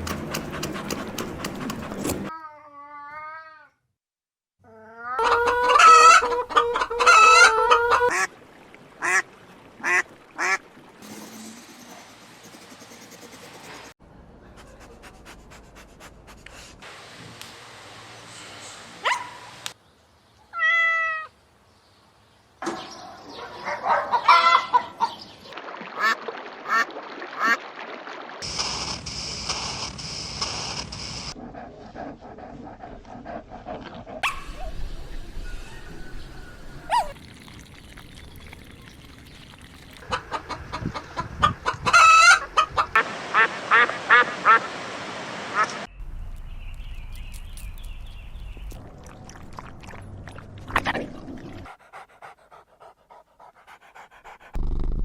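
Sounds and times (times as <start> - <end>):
ducks quacking: 9.0 - 9.2, 9.8 - 10.6, 40.0 - 44.7
cat meowing: 20.5 - 21.3.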